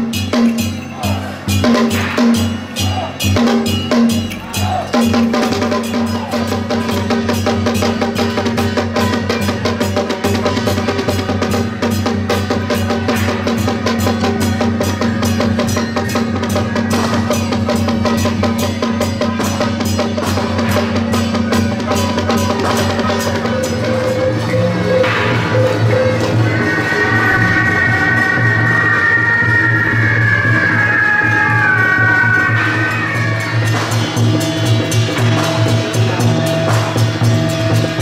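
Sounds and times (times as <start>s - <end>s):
drums beating rapidly: 0.0s - 38.0s
sustained pitched instrument notes: 20.7s - 38.0s.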